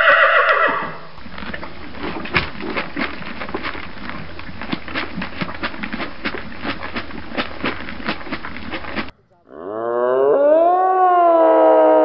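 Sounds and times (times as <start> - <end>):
cow mooing: 9.4 - 12.0.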